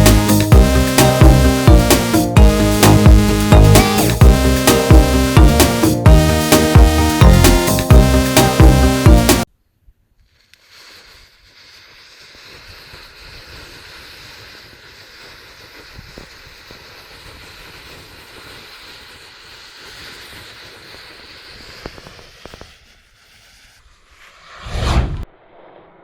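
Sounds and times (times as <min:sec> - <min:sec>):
sharp crackles of burning matches: 0:10.2 - 0:24.3
hissing rush of flame: 0:10.3 - 0:26.0.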